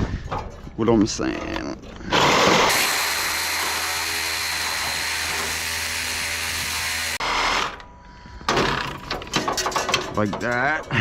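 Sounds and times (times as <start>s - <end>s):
reciprocating saw cutting metal: 2.1s - 7.8s.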